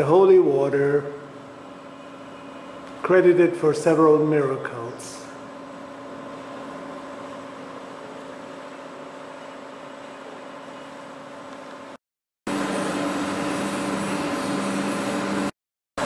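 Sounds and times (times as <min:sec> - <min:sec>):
louder engine hum: 0:12.5 - 0:15.6.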